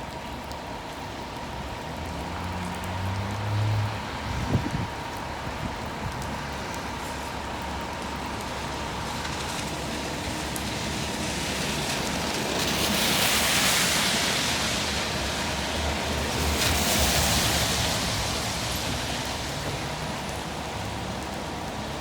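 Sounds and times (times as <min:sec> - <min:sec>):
tyres hissing on road: 0:01.9 - 0:22.0.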